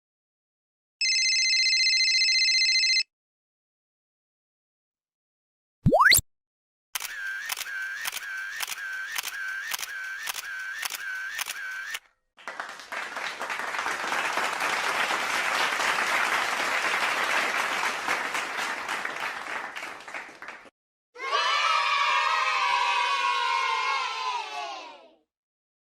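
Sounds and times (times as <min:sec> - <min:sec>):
crowd applauding: 0:12.4 - 0:20.7.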